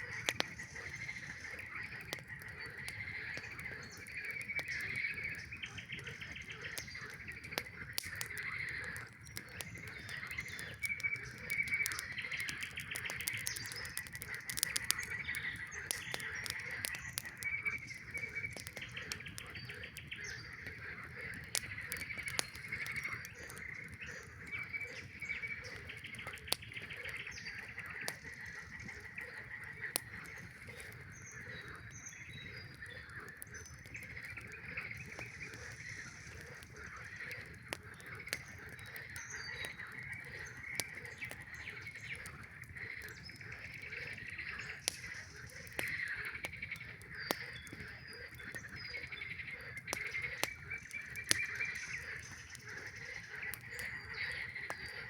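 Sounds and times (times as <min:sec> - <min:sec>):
campfire crackling: 0:00.0 - 0:55.0
frogs calling in chorus: 0:00.0 - 0:55.0.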